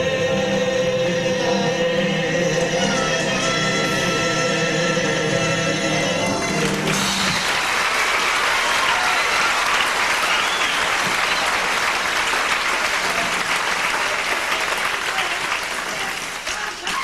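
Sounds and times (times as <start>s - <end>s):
held song chord: 0.0s - 7.8s
audience applauding: 6.3s - 17.0s.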